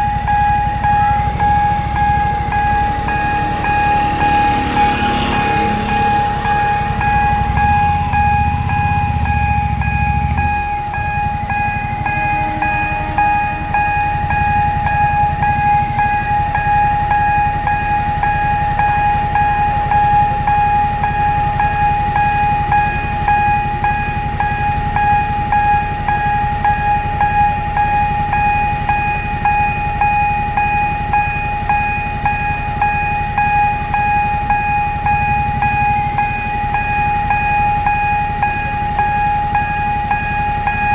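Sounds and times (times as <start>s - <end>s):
train rumbling: 0.0s - 17.2s
level crossing alarm ringing: 0.0s - 40.9s.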